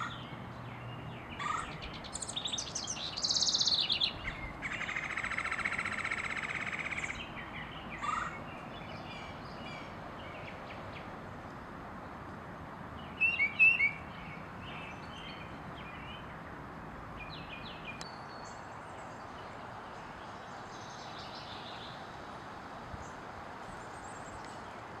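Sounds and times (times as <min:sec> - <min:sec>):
bird whistled call: 0:13.2 - 0:14.0.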